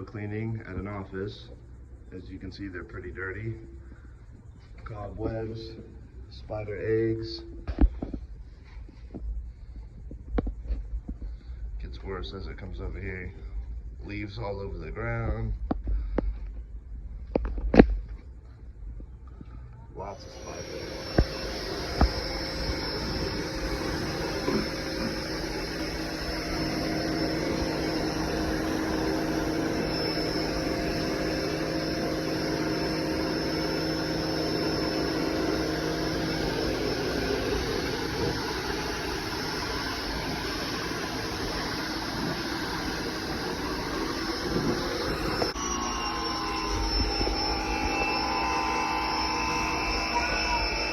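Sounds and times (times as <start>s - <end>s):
electric pressure washer drone: 20.0s - 50.9s.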